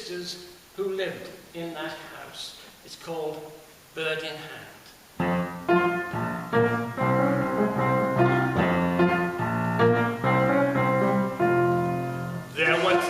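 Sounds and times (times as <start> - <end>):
piano chords: 5.2 - 13.0.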